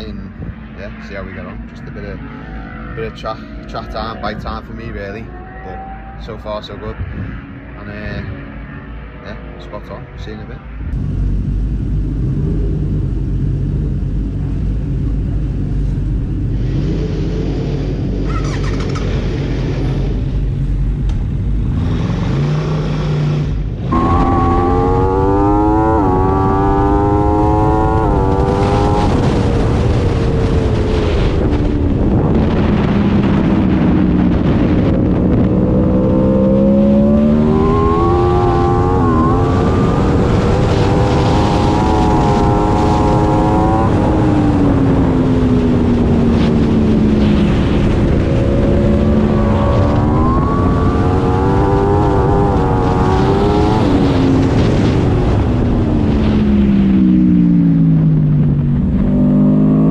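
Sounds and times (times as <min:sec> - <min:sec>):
wind rush: 0:00.0 - 0:05.9, 0:06.6 - 0:09.2, 0:10.6 - 0:59.9
motorcycle engine revving: 0:00.0 - 0:59.9.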